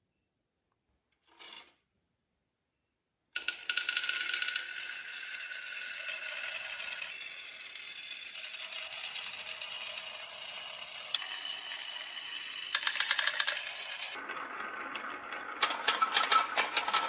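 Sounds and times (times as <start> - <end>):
marbles ringing rolling: 9.2 - 14.2
marbles rattling on wood: 12.7 - 14.2
marble clack: 12.8 - 14.1.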